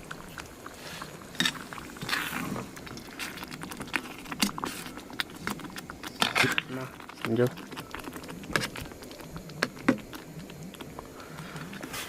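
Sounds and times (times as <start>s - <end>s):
gravy being stirred: 0.0s - 12.0s.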